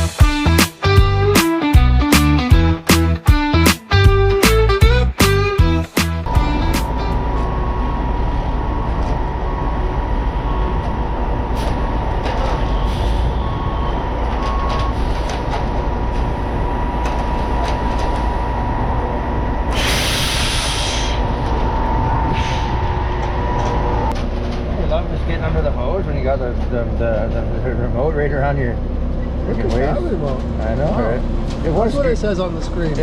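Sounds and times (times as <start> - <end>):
concrete pump rumble and whine: 5.6 - 33.0
loud hiss: 19.7 - 21.3.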